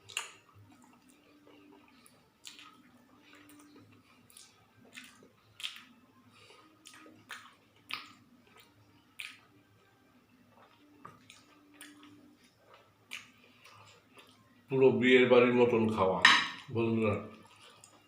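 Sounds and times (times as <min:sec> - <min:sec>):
person chewing food: 0:00.0 - 0:09.6, 0:10.4 - 0:14.7, 0:17.3 - 0:18.0
wet mouth smacks and clicks: 0:00.1 - 0:00.4, 0:04.3 - 0:05.9, 0:06.8 - 0:09.4.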